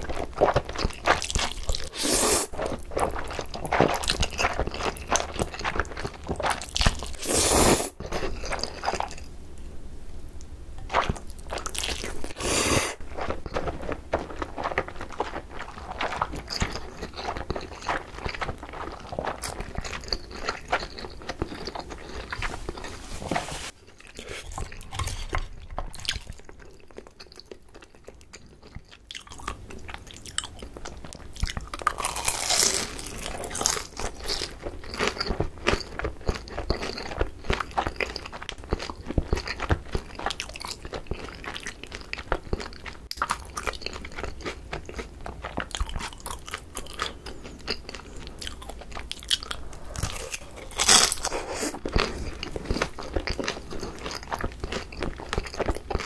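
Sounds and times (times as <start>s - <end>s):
crunchy chewing and biting: 23.9s - 56.0s.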